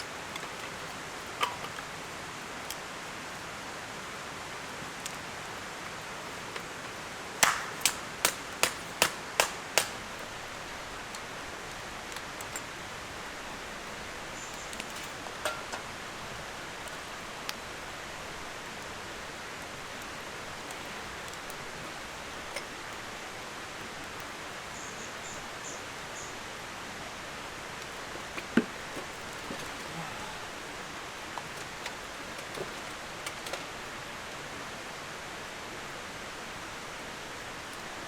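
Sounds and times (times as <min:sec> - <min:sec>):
steady hiss: 0:00.0 - 0:38.0
sharp knocks: 0:07.4 - 0:10.0.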